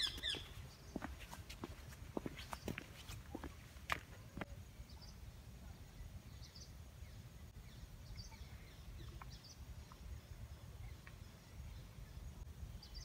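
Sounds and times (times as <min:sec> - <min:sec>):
distant bird chirps: 0:00.0 - 0:01.4.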